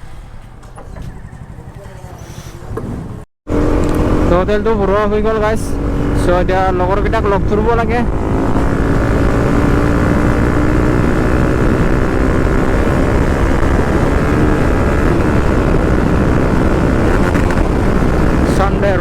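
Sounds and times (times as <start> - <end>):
motorcycle engine running: 0.4 - 2.2, 2.8 - 19.0
wind rumble on microphone: 2.8 - 19.0.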